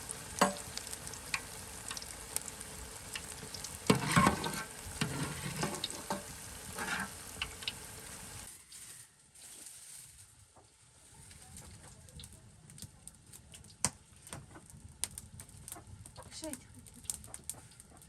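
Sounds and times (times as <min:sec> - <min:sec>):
food sizzling in a pan: 0:00.0 - 0:10.3
utensil scraping a pan: 0:03.2 - 0:09.8.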